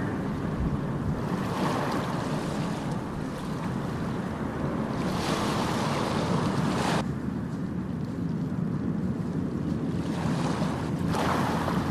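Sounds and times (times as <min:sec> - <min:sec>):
wave washing in: 0:00.0 - 0:07.0, 0:09.8 - 0:11.9
low rumble of the sea: 0:00.0 - 0:11.9.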